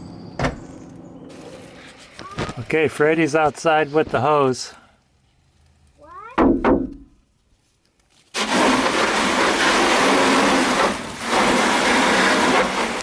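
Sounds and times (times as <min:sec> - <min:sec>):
hose water spraying on car: 0:08.2 - 0:13.0.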